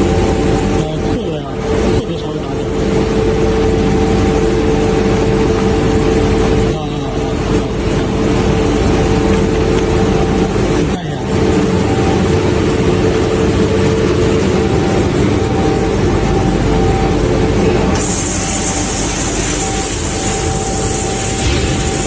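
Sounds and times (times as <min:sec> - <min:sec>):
constant hum: 0:00.0 - 0:22.0
sandblaster rushing hiss: 0:18.0 - 0:22.0.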